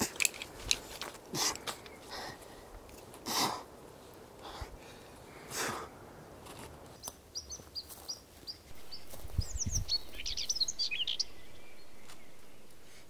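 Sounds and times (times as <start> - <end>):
small birds chirping: 5.1 - 13.0.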